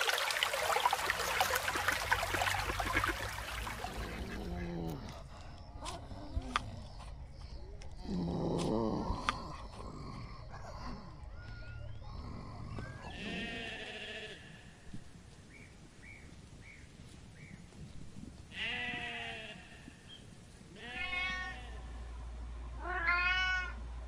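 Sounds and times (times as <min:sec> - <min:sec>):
sheep bleating: 0:13.0 - 0:14.7, 0:18.5 - 0:19.9.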